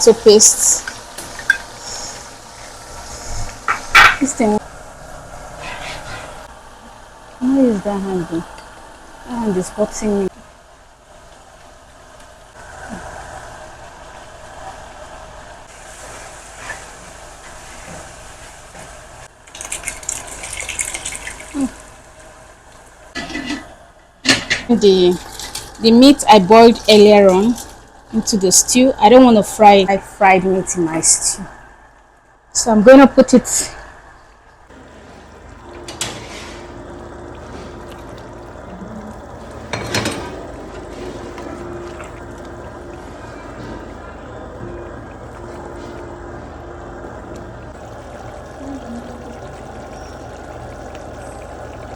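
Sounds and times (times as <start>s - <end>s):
crackling sizzle: 0.0s - 51.9s
stew bubbling in a pot: 12.0s - 23.8s, 34.7s - 51.9s.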